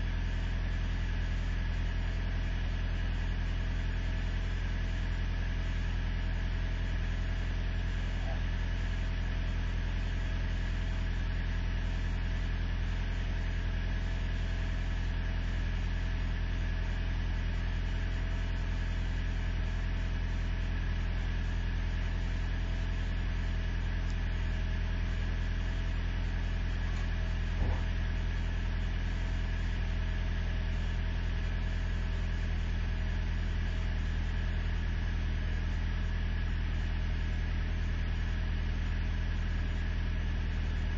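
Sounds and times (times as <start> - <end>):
truck engine idling: 18.0 - 33.6.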